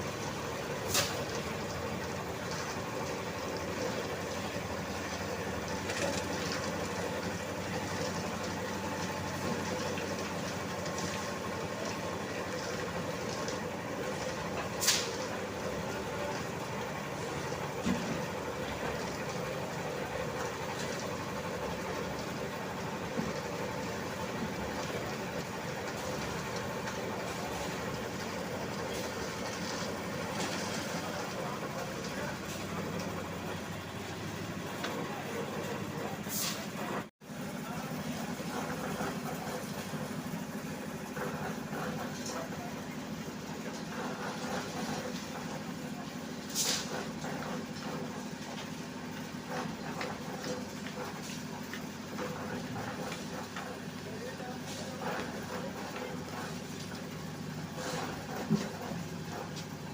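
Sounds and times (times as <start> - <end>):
construction machine engine running: 0.0 - 59.9.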